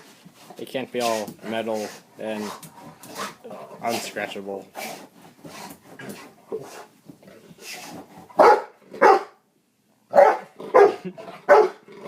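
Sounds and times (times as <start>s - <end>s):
dog barking: 8.4s - 9.4s, 10.1s - 11.8s.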